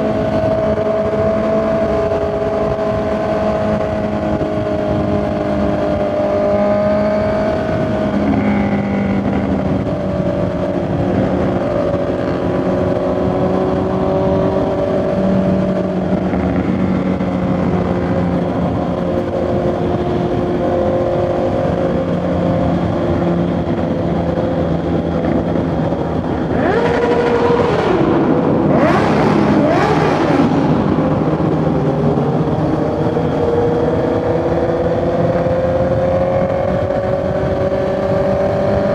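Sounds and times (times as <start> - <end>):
motorcycle engine and exhaust: 0.0 - 38.9.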